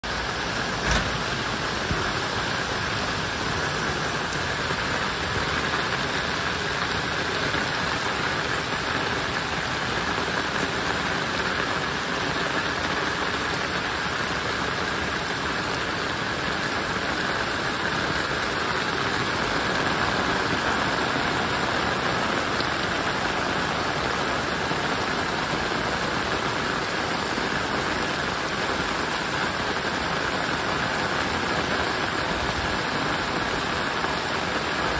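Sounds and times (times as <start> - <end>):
heavy rain splashing into water: 0.0 - 34.9.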